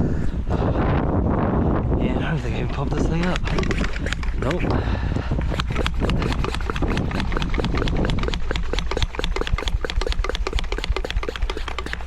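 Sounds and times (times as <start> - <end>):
wind rumble on microphone: 0.0 - 12.0
hand pump sprayer clicks and rattles: 2.6 - 12.0.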